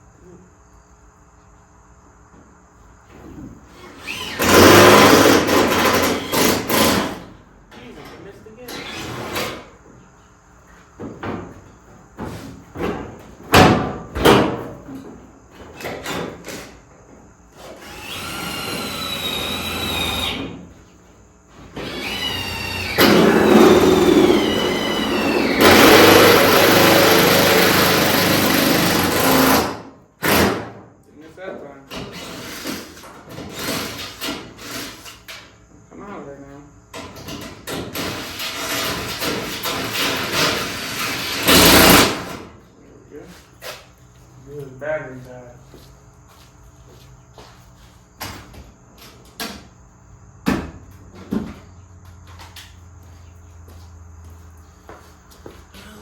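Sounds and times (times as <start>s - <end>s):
cordless drill whining: 3.8s - 7.0s, 17.6s - 20.4s, 21.7s - 29.5s
power screw gun driving screw: 3.8s - 7.2s, 17.6s - 20.5s, 21.7s - 30.5s, 32.0s - 35.2s, 37.9s - 42.3s.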